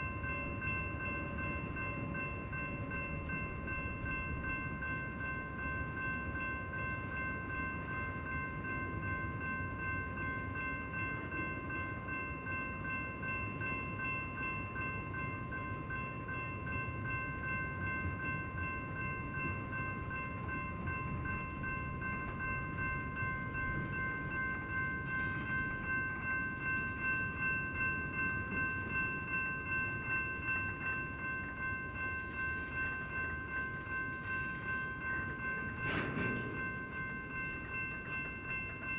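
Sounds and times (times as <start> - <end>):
rhythmic pulsing of train wheels: 0.0 - 38.9
freight train rumbling: 17.3 - 38.9.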